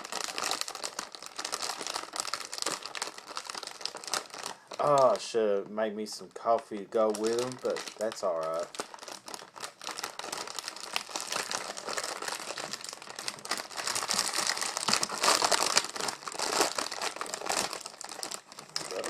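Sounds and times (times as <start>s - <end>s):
plastic package crinkling: 0.0s - 5.7s, 6.3s - 19.0s.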